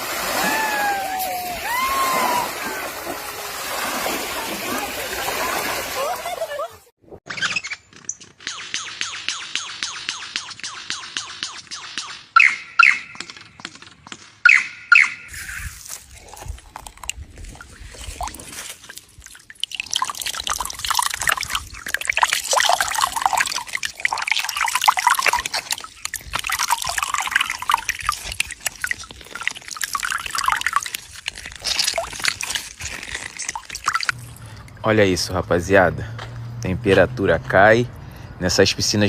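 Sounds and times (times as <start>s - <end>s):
water pouring and splashing: 0.0s - 6.9s, 15.3s - 35.2s.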